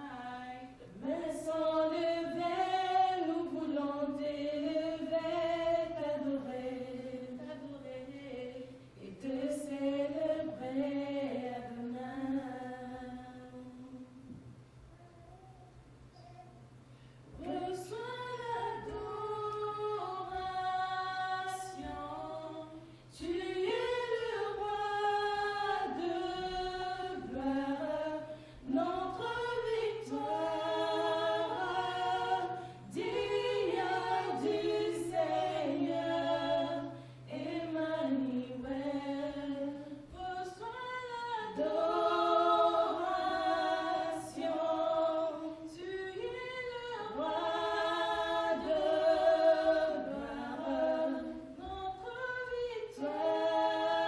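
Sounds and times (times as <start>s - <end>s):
choir singing a hymn: 0.0s - 14.0s, 17.4s - 54.0s
steady low hum: 0.0s - 54.0s.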